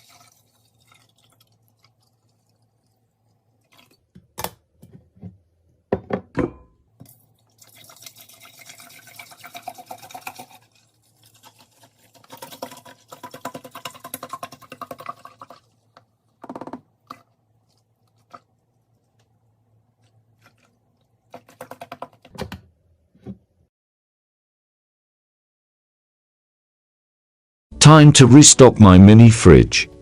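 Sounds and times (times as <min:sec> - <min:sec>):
liquid pouring into a container: 0:00.0 - 0:04.1, 0:07.0 - 0:22.3.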